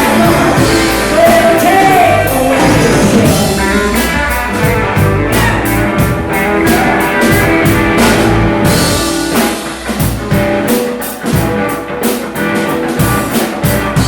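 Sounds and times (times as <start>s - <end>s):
drum kit beat: 0.0s - 14.0s
electric guitar: 0.0s - 14.0s.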